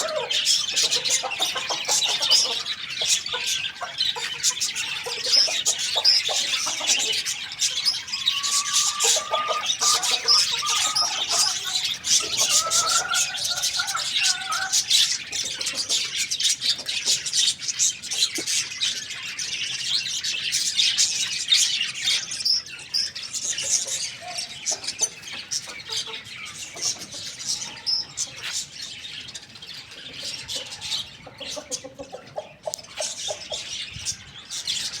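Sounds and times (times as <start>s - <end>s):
small birds chirping: 0.0s - 35.0s
sliding bird calls: 8.3s - 14.8s.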